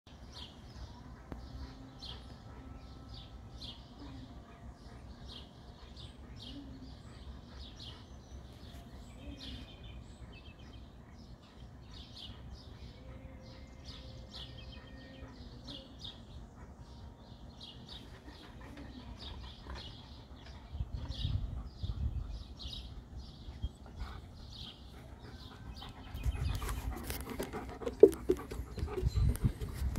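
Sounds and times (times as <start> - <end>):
small birds chirping: 0.1 - 29.9.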